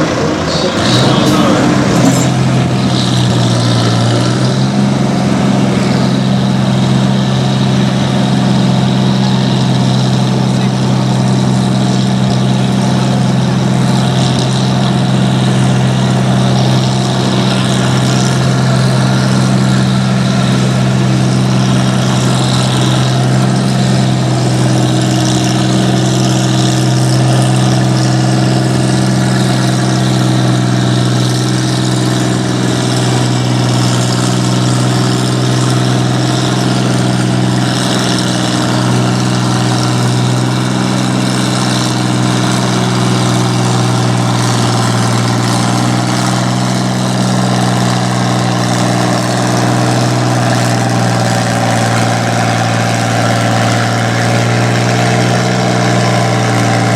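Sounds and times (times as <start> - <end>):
second engine tone: 0.0 - 56.9
tractor engine idling: 0.0 - 56.9.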